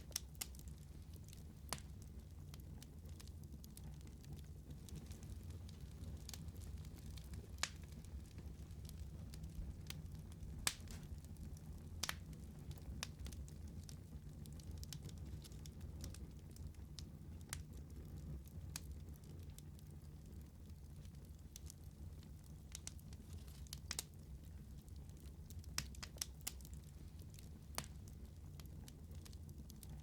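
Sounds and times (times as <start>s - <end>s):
fire crackling and popping: 0.0s - 30.0s
fire flames rumbling: 0.0s - 30.0s.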